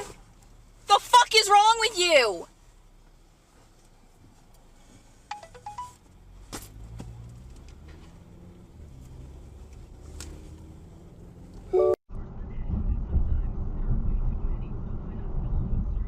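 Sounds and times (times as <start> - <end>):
low vehicle running: 4.2 - 16.0
electronic chime tones: 5.3 - 6.0.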